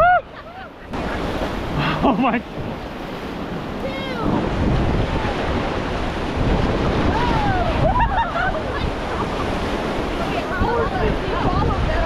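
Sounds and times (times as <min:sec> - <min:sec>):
whitewater rushing and splashing: 0:00.0 - 0:12.0
people yelling: 0:07.1 - 0:08.9.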